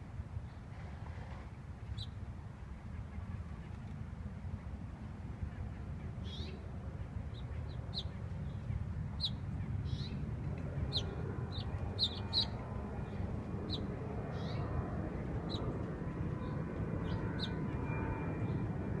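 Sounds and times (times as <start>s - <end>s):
low background rumble: 0.0s - 19.0s
finches chirping: 10.8s - 14.7s, 16.4s - 17.7s.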